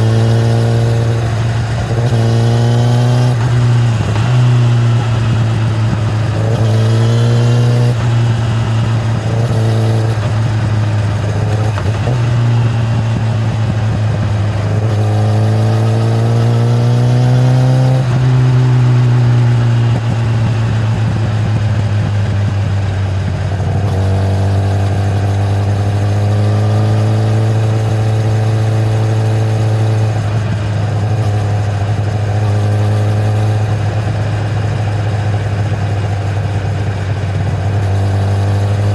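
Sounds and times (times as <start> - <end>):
motorcycle engine under throttle: 0.0 - 38.9.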